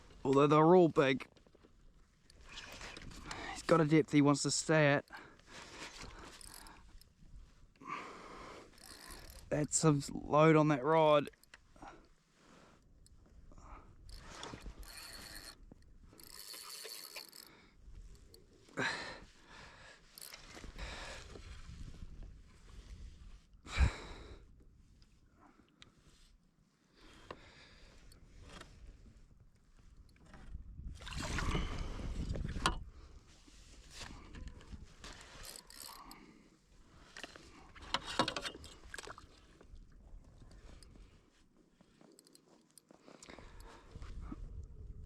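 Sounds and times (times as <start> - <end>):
fishing reel clicking and whirring: 5.9 - 7.2, 8.4 - 9.8, 13.9 - 18.4, 20.1 - 21.4, 35.0 - 36.2.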